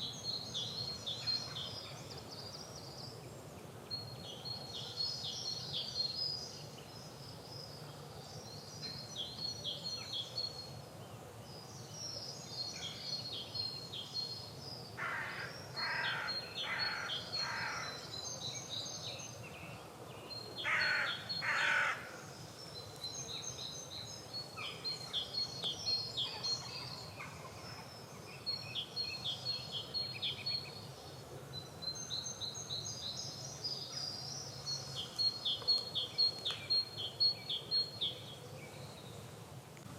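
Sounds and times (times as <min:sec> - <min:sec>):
songbird chirping phrases: 0:00.0 - 0:39.3.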